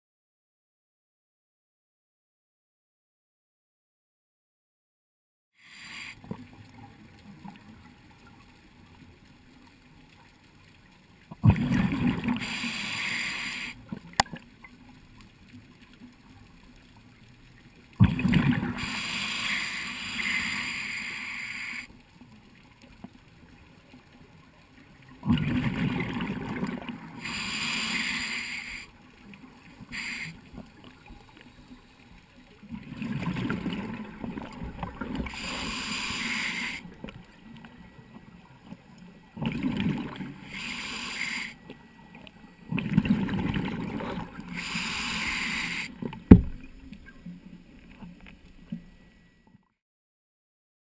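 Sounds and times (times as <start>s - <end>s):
regulator exhaled bubbles gurgling: 11.3s - 13.0s, 18.0s - 20.6s, 25.1s - 28.4s, 32.6s - 37.2s, 39.3s - 41.6s, 42.6s - 47.2s
regulator hiss: 12.4s - 13.8s, 18.8s - 22.0s, 27.2s - 29.0s, 29.8s - 30.5s, 35.2s - 37.0s, 40.4s - 41.6s, 44.5s - 46.0s.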